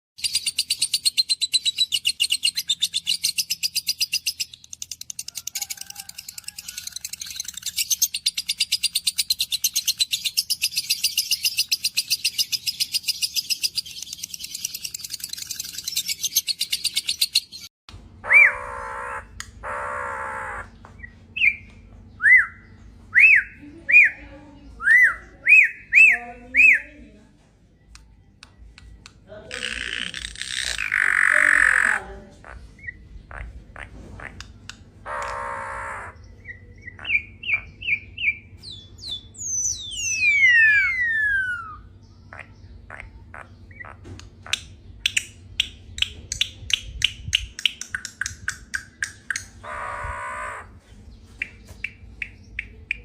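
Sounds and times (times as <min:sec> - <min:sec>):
birds chattering: 0:00.2 - 0:53.0
harsh bird squawks: 0:18.2 - 0:20.8, 0:29.5 - 0:38.0, 0:40.0 - 0:44.7, 0:49.3 - 0:50.9.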